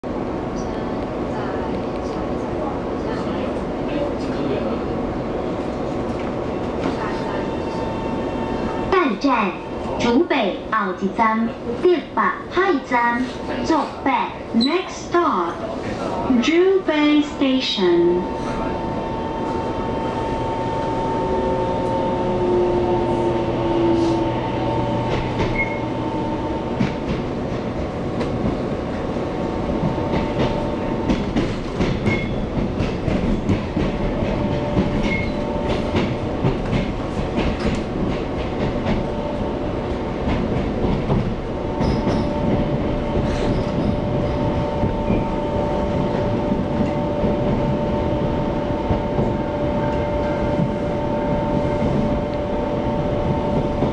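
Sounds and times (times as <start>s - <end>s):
wheels rumbling on rail: 0.0s - 53.9s
train motors whining: 18.3s - 27.1s
rail joint clacks: 21.7s - 28.7s, 29.5s - 53.9s.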